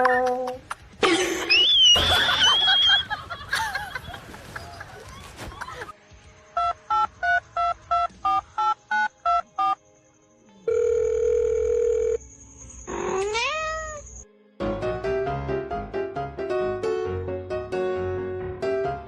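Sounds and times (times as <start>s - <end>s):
cat meowing: 12.9s - 14.2s
piano music: 14.6s - 19.0s.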